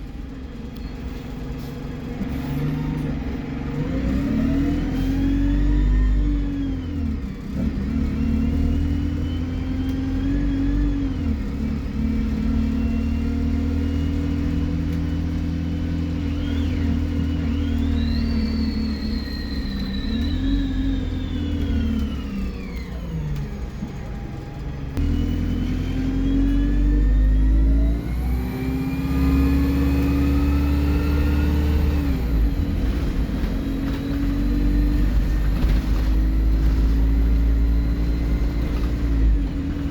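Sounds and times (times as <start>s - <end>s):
bus engine accelerating: 0.0s - 39.9s
turbo whistle: 16.4s - 21.4s.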